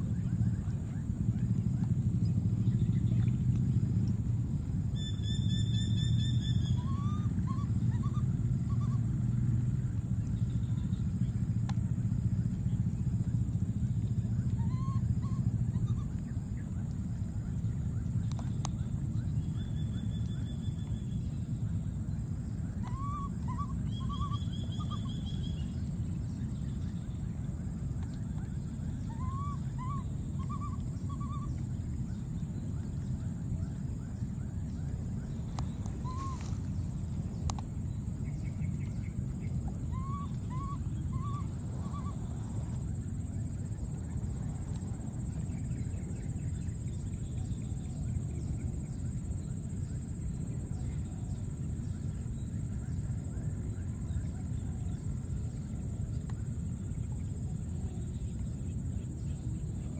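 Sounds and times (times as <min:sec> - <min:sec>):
steady high whine: 0:00.0 - 0:59.9
steady low rumble: 0:00.0 - 0:59.9
bird calling: 0:05.0 - 0:09.2, 0:14.4 - 0:16.5, 0:22.7 - 0:25.9, 0:28.4 - 0:32.3, 0:34.6 - 0:43.0.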